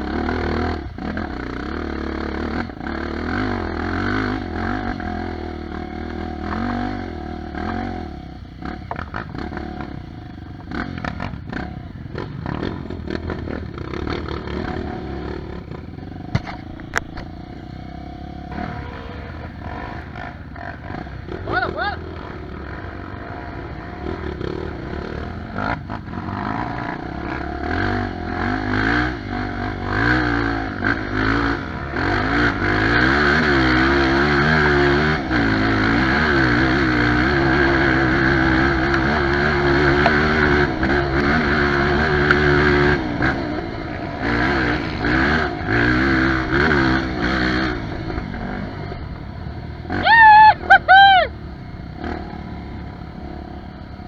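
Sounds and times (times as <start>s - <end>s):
dirt bike engine revving: 0.0s - 54.0s
person shouting: 21.4s - 22.1s, 49.9s - 51.3s.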